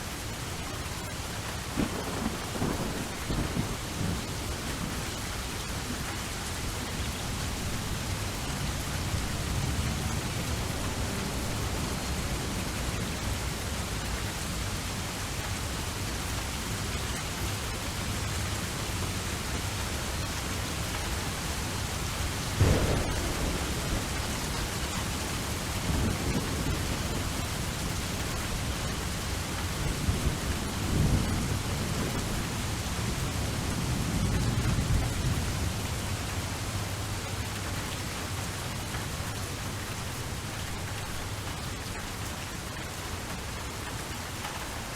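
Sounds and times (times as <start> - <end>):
steady rain: 0.0 - 44.9
low rolling thunder: 1.7 - 13.4, 20.8 - 36.8
loud thunderclap: 1.8 - 4.2, 22.6 - 27.8.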